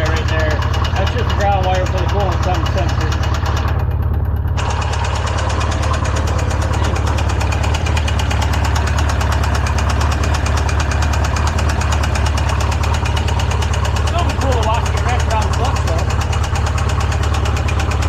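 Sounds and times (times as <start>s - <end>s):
engine idling with fast ticking: 0.0s - 18.0s.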